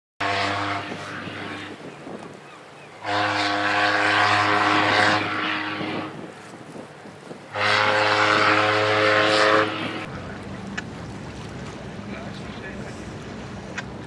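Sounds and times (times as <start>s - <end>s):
steam horn blasts: 0.2s - 1.8s, 3.0s - 6.3s, 7.5s - 10.1s.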